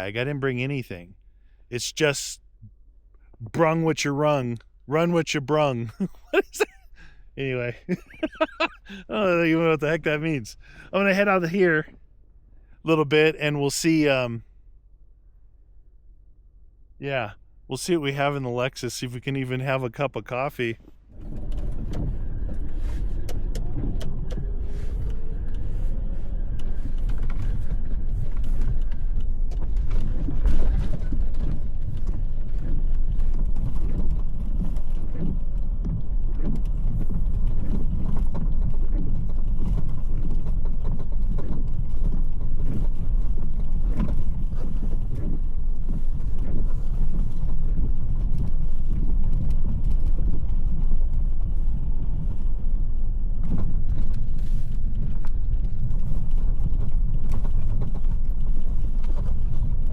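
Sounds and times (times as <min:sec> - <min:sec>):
off-road vehicle engine and road rumble: 0:00.0 - 0:59.9
body and suspension rattling: 0:19.9 - 0:59.9.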